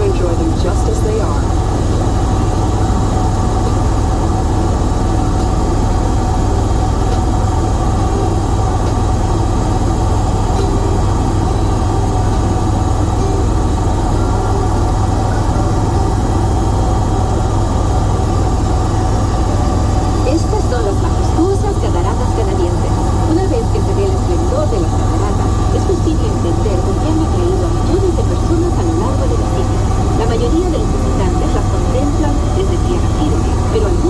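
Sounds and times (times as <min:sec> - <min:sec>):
helicopter engine and rotor drone: 0:00.0 - 0:34.0
steady tone: 0:00.0 - 0:34.0.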